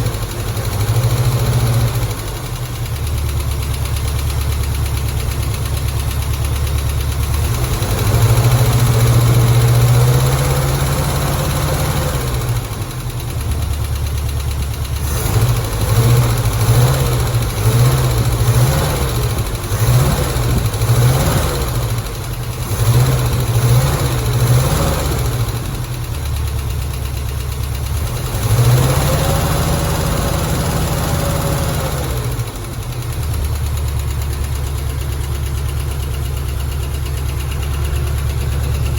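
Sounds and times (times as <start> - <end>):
car engine revving: 15.0 - 25.9, 28.0 - 33.1.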